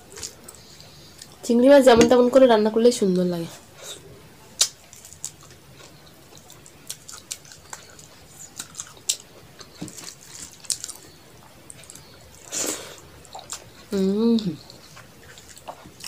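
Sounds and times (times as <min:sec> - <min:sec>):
wet chewing and mouth smacks: 0:04.6 - 0:16.0.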